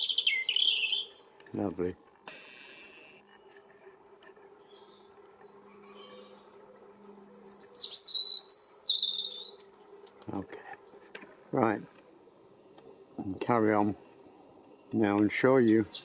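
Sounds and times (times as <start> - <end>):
robin singing: 0.0 - 3.5, 4.5 - 10.0, 12.6 - 16.0.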